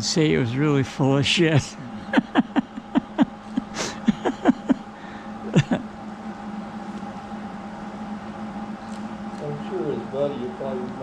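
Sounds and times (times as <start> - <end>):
low hum: 0.0 - 11.0
man laughing: 1.3 - 6.0.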